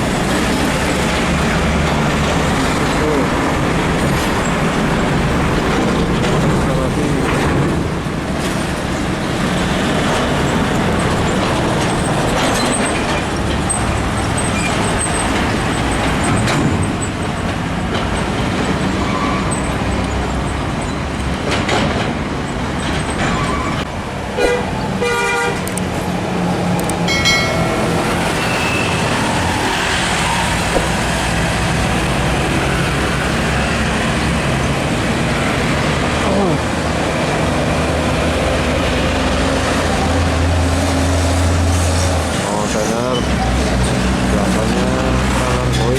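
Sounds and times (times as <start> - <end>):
heavy trucks passing: 0.0 - 45.9
truck horns tooting: 23.3 - 25.9, 27.1 - 31.4.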